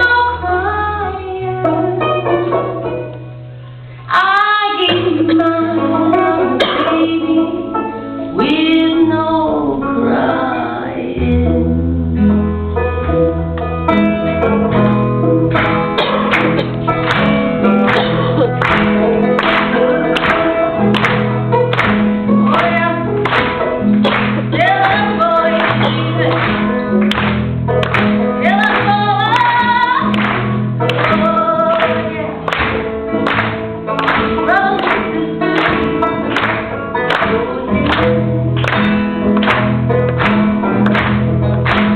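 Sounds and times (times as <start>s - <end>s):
strummed guitar: 0.0s - 41.9s
bass line: 11.2s - 41.9s
person singing: 22.3s - 23.7s, 24.4s - 26.8s, 28.4s - 32.5s, 34.2s - 38.6s.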